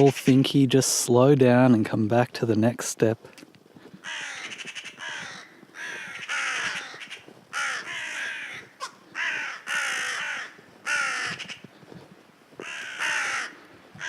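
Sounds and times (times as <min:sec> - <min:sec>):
crows cawing: 0:04.0 - 0:11.8, 0:12.6 - 0:14.0.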